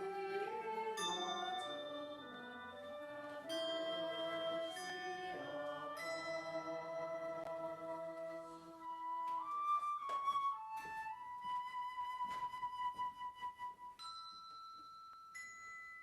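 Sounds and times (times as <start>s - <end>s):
flute-toned melody: 0.0s - 14.3s.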